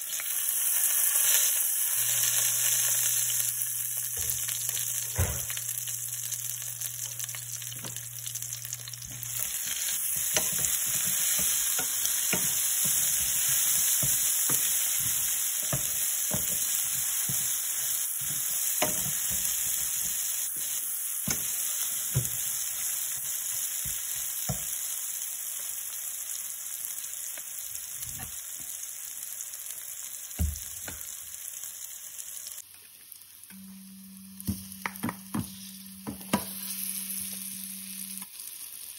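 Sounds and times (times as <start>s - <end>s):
onions sizzling in a pan: 0.0s - 38.9s
wooden spatula knocking a pan: 10.1s - 21.5s.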